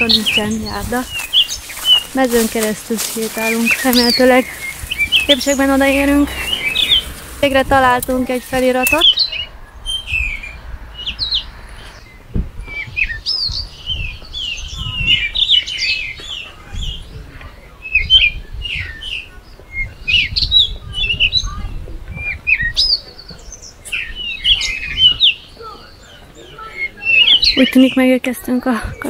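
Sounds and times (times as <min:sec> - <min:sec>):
low uneven rumble: 0:00.0 - 0:12.7
small birds chirping: 0:00.0 - 0:29.0.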